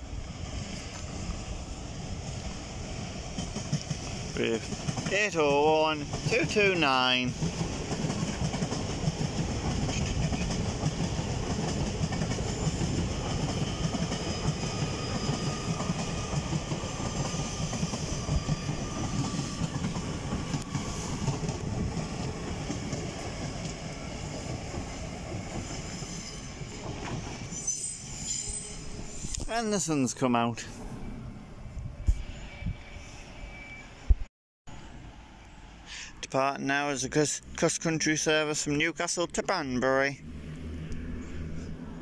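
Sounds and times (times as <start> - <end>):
faint train whine: 0.0 - 42.0
train wheels clattering: 3.3 - 27.5.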